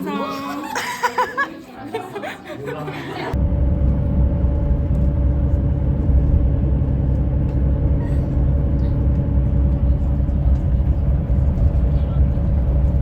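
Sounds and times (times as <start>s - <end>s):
faint constant hum: 2.2s - 13.0s
moving vehicle rumble: 3.3s - 13.0s.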